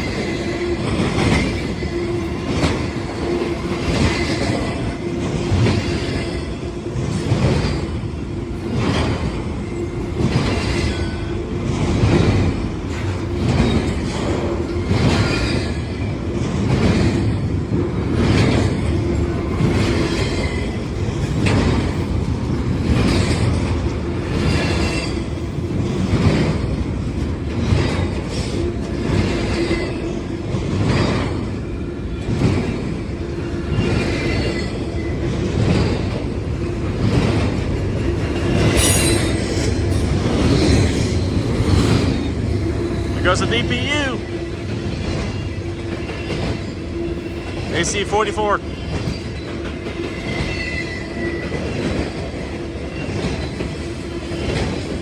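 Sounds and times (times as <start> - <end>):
train wheels clacking over rail joints: 0.0 - 47.7, 48.7 - 55.0
high wheel squeal: 38.5 - 42.0, 50.1 - 51.6.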